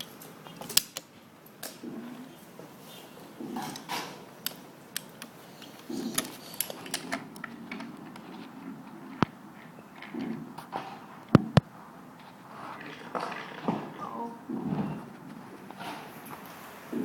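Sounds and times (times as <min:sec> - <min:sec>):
toy train pieces clicking: 0:04.4 - 0:07.5.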